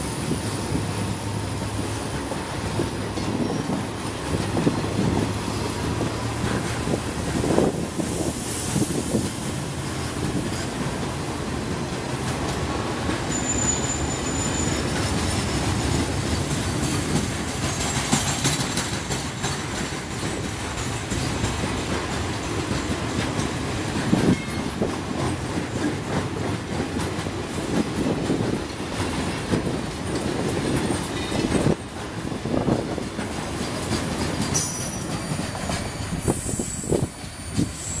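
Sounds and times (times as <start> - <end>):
wheels clacking over rail joints: 0.0 - 8.0, 8.8 - 38.0
train wheels rumbling: 0.0 - 38.0
high wheel squeal: 13.3 - 16.1, 34.5 - 38.0.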